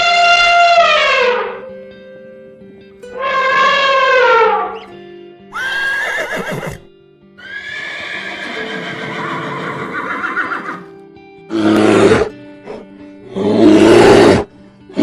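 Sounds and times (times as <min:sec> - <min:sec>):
background music: 0:00.0 - 0:15.0
rough animal call: 0:03.2 - 0:06.8
horse whinnying: 0:03.2 - 0:10.9, 0:11.5 - 0:12.8, 0:13.4 - 0:14.5.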